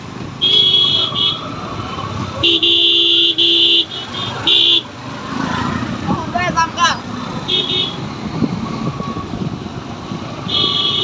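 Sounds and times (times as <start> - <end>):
motor and road noise: 0.0 - 11.0
motorcycle horn honking: 0.4 - 1.4, 7.5 - 8.0, 10.4 - 11.0.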